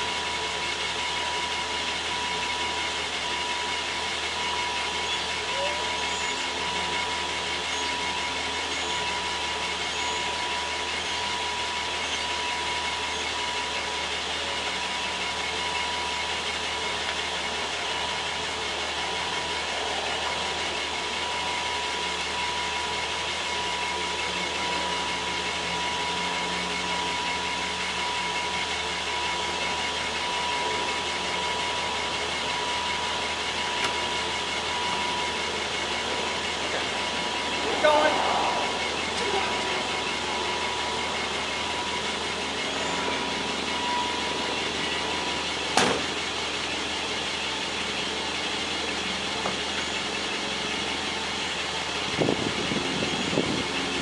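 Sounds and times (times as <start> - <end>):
car engine idling: 0.0 - 54.0
high-pitched tone: 19.3 - 45.6.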